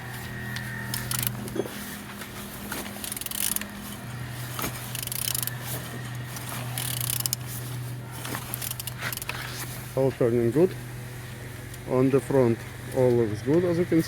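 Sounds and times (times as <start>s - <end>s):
crankshaft clicks and scrapes: 0.0s - 9.8s
steady low hum: 0.0s - 14.0s.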